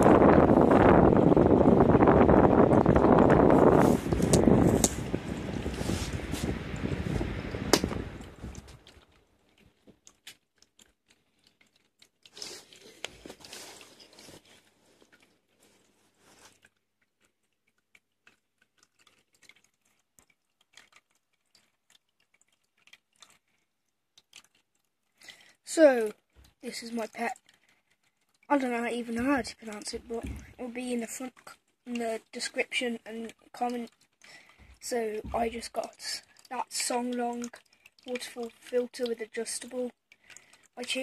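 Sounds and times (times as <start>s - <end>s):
microphone rustling: 0.0s - 8.9s
sharp microphone clicks: 0.0s - 9.1s.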